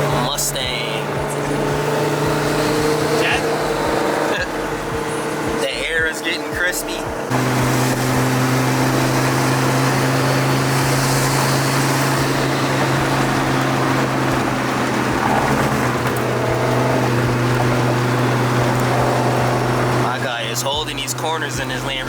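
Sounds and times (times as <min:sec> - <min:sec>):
car engine and road noise drone: 0:00.0 - 0:22.0.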